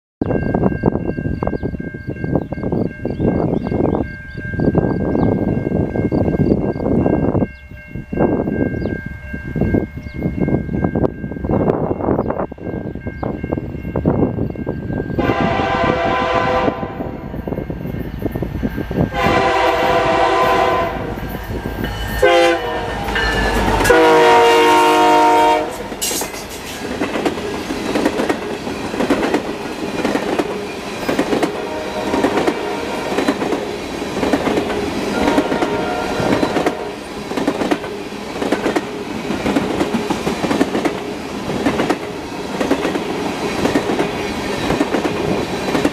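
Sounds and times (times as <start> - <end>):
diesel locomotives passing: 0.2 - 45.9
train horn: 15.2 - 17.3, 19.1 - 21.4, 22.1 - 26.2, 31.5 - 33.3, 35.1 - 37.1.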